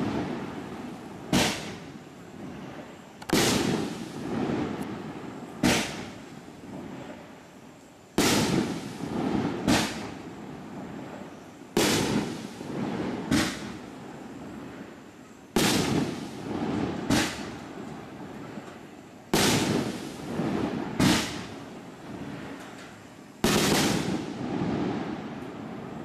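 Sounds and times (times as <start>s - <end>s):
firework aerial bangs: 0.0s - 7.3s, 8.1s - 14.9s, 15.5s - 18.6s, 19.3s - 26.0s.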